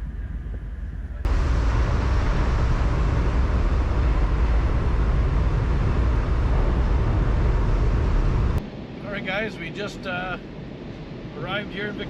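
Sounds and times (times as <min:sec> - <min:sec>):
large vehicle rumbling: 0:00.0 - 0:08.6.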